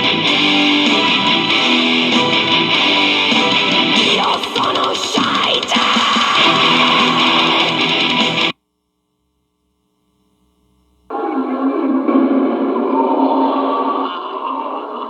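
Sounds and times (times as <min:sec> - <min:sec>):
metal music with distorted guitars: 0:00.0 - 0:08.5.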